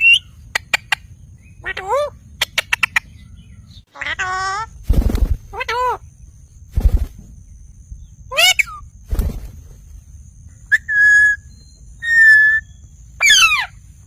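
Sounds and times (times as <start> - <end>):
parrot calling and whistling: 10.7 - 13.8
parrot screeching: 13.2 - 13.7.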